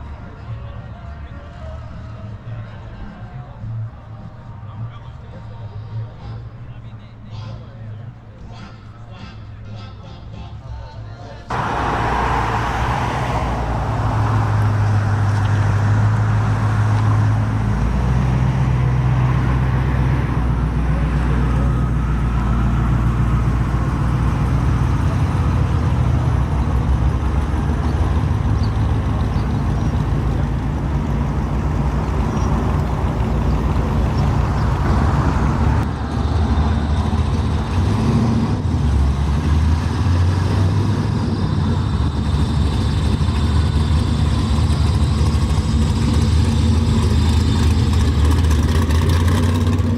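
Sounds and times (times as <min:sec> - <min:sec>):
car engine running: 0:11.5 - 0:37.8, 0:41.6 - 0:49.9.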